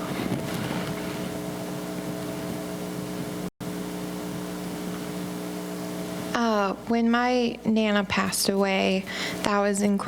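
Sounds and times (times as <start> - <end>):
microphone handling noise: 0.0 - 3.4
electrical hum with hiss: 0.0 - 10.0.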